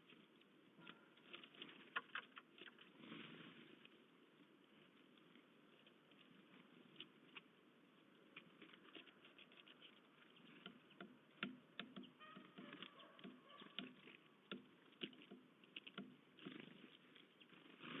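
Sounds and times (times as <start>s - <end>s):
pecking at bird feeder: 7.0s - 18.0s.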